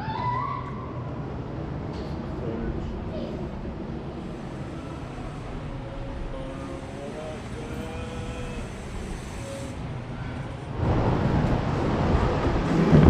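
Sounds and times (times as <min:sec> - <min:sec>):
bike tyre and wind noise: 0:07.4 - 0:13.0
low rumble: 0:10.7 - 0:13.0.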